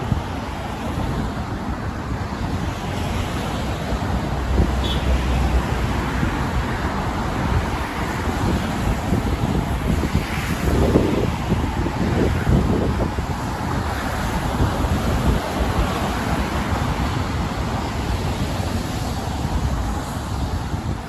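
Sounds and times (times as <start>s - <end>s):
road traffic hiss: 0.0s - 21.0s
wind gusting on microphone: 0.0s - 21.0s.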